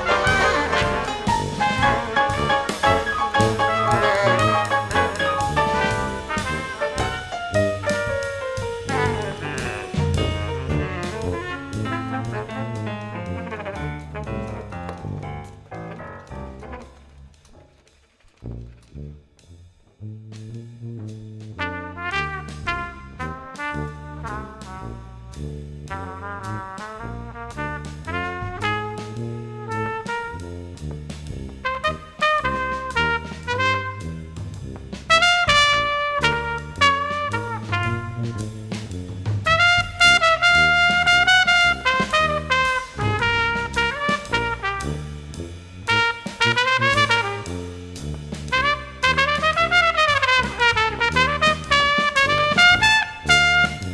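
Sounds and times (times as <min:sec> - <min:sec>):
trumpets playing: 0:00.0 - 0:15.2, 0:31.6 - 0:34.4, 0:35.1 - 0:38.4, 0:39.5 - 0:47.8, 0:48.5 - 0:53.9
bass line: 0:00.0 - 0:17.8, 0:18.4 - 0:53.9
drums: 0:00.0 - 0:53.9.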